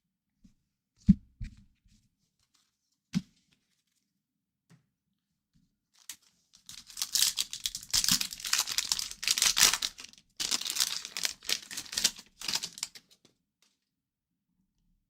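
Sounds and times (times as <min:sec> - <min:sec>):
wrapper crinkling and tearing: 0:06.0 - 0:13.2.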